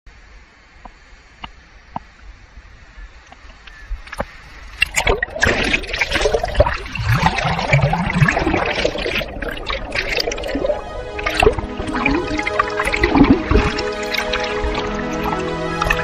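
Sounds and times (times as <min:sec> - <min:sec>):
crackling bubbles: 0:04.1 - 0:16.0
seawater surging in rock pool: 0:04.1 - 0:16.0.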